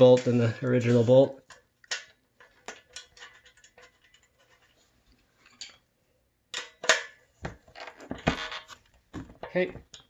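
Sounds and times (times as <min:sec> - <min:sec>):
hand tool scraping: 0:00.0 - 0:01.4.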